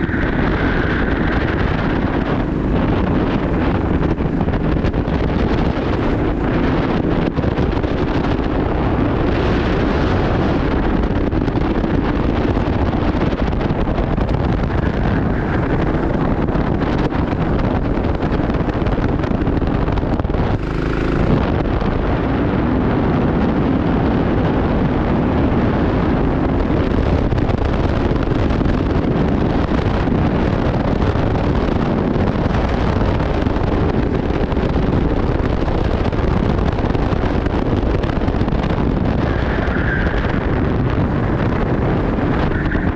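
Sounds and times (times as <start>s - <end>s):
kart engine running hard: 0.0s - 42.9s
wind buffeting microphone: 0.0s - 42.9s.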